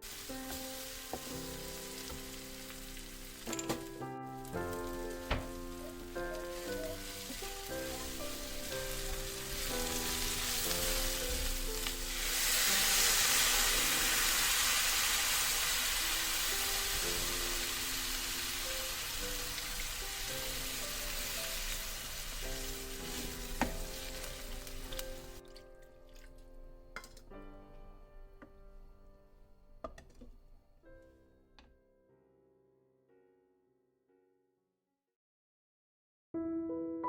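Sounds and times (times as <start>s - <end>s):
food sizzling in a hot pan: 0.0s - 25.4s
soft background music: 0.0s - 33.6s.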